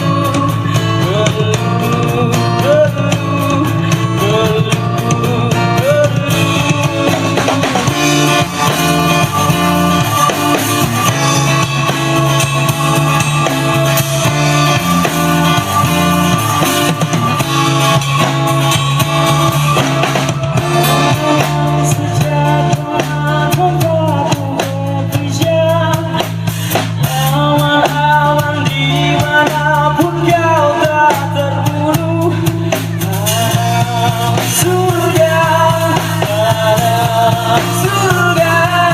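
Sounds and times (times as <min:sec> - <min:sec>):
lead melody line: 0:00.0 - 0:23.9
rock band playing: 0:00.0 - 0:38.9.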